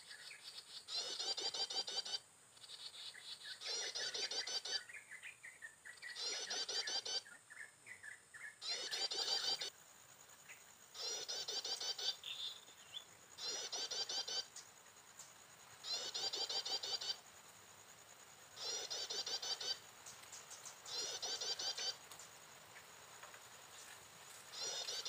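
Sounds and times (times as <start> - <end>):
bird chirping phrase: 0.1 - 9.7, 11.0 - 14.5, 18.6 - 19.8, 20.9 - 22.0, 24.5 - 25.0
high insect buzz: 8.6 - 25.0.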